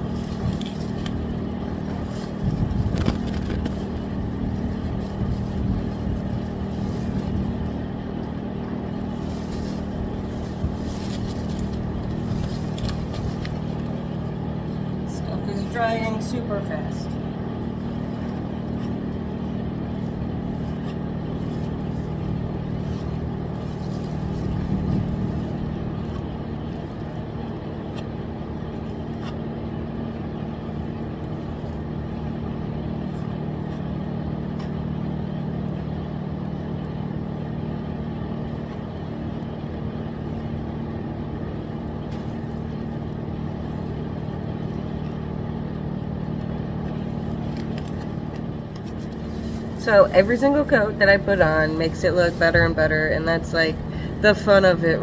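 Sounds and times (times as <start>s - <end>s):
motor humming: 0.0s - 29.4s.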